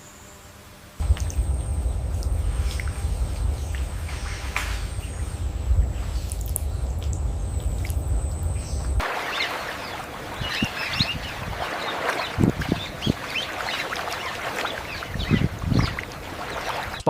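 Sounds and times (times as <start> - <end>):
steady high whine: 0.0 - 17.0
low rumble: 1.0 - 16.8
dense bird chatter: 8.5 - 17.0
short low bird calls: 8.5 - 17.0.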